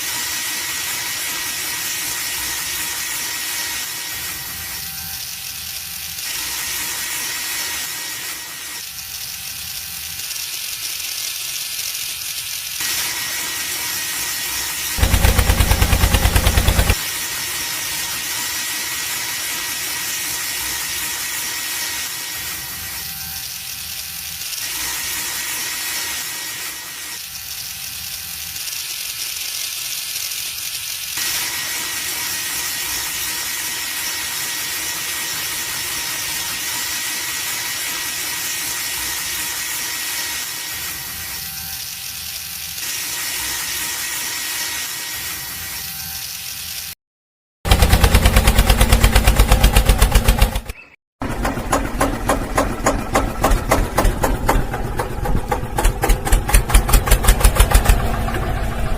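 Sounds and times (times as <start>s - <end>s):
small electric motor whining: 0.0s - 47.0s.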